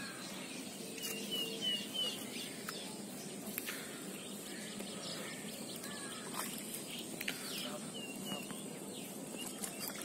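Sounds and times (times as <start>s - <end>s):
bird high chirps: 0.0s - 3.4s
steady background hiss: 0.0s - 9.8s.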